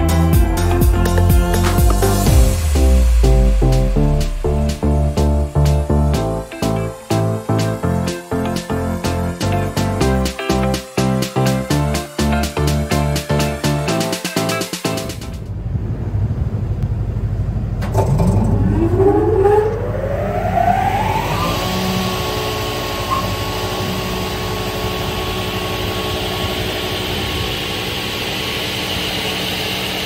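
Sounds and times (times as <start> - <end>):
low machine hum: 0.0 - 13.9, 15.1 - 30.0
saw motor whine: 18.6 - 30.0.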